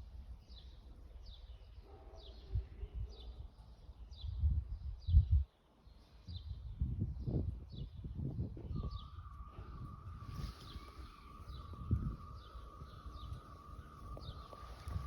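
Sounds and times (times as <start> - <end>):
birds chirping: 0.3 - 15.0
uneven low rumble: 8.6 - 15.0
wavering high tone: 8.9 - 15.0.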